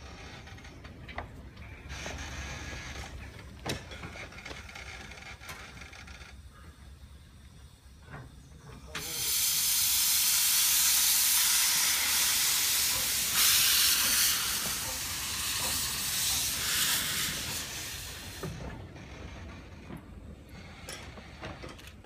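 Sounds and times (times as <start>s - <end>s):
steam locomotive venting steam: 6.3s - 19.7s.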